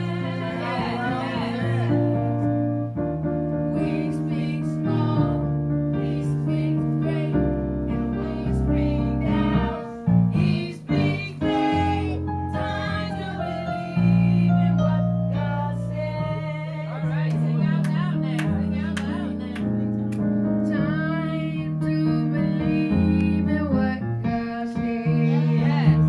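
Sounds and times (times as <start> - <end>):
bass line: 0.0 - 26.0
held keyboard chords: 0.0 - 26.0.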